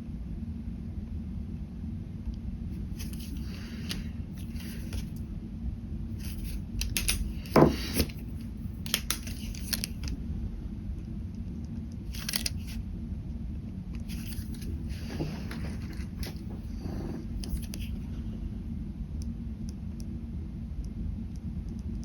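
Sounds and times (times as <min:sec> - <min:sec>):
pen scratching on paper: 0:14.1 - 0:17.9.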